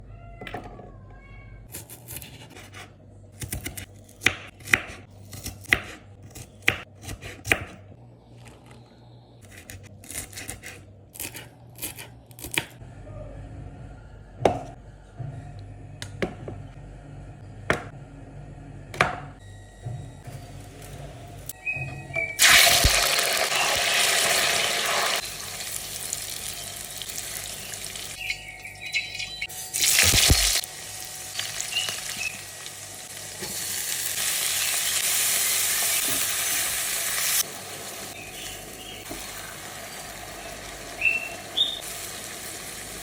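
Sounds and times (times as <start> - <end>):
steady low hum: 7.7 - 22.4.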